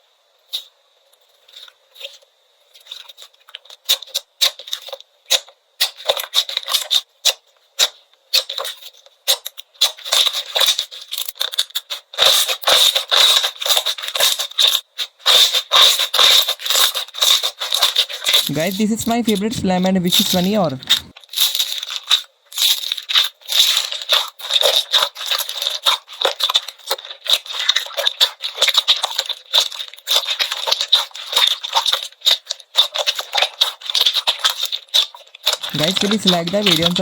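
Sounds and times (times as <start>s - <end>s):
slime crackling and popping: 20.0s - 37.0s.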